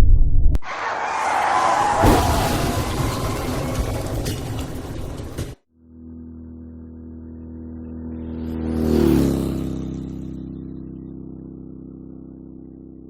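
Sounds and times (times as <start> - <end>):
vehicle passing by: 6.0 - 12.4.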